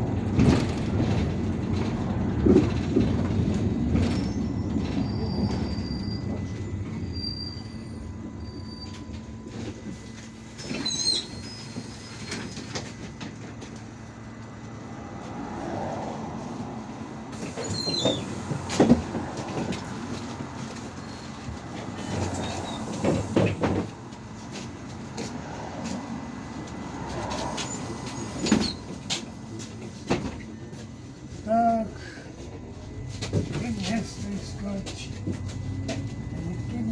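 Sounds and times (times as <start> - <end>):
bus body rattling and knocking: 0.0 - 7.0, 8.9 - 15.4, 16.4 - 36.9
bus engine drone: 0.0 - 36.9
high squeaks of interior fittings: 10.6 - 12.7, 17.6 - 18.4.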